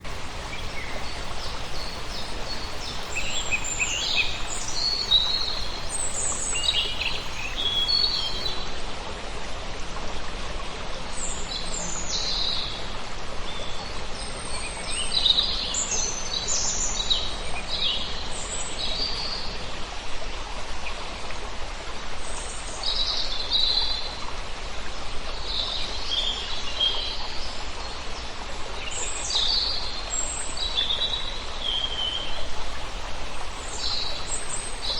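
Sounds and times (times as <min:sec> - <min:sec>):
songbirds chirping and trilling: 0:00.0 - 0:08.5, 0:32.3 - 0:34.9
steady background hiss: 0:00.0 - 0:08.5, 0:32.3 - 0:34.9.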